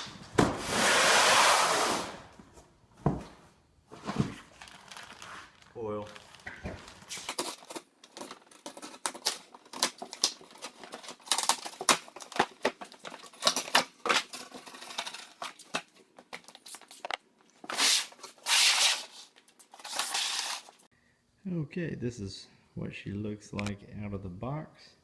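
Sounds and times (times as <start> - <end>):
packing material rustling: 4.6 - 20.9.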